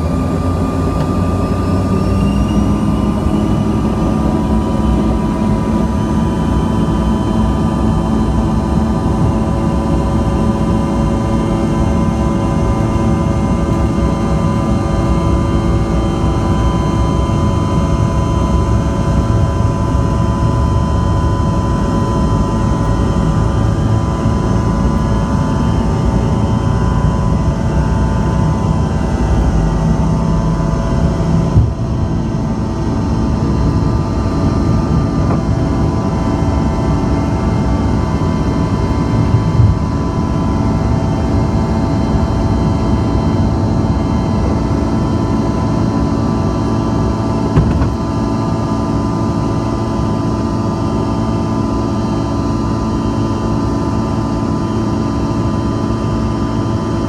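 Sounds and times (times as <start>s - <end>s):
jet engines droning in cabin: 0.0s - 57.0s
short knock: 47.6s - 48.0s.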